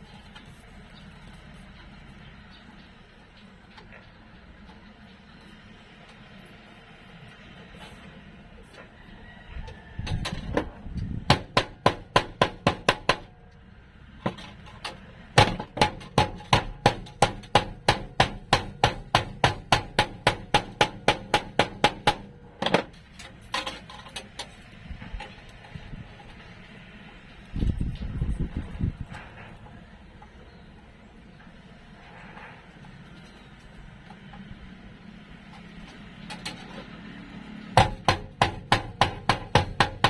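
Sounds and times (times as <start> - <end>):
hammer blows: 15.4 - 23.3, 37.6 - 40.0.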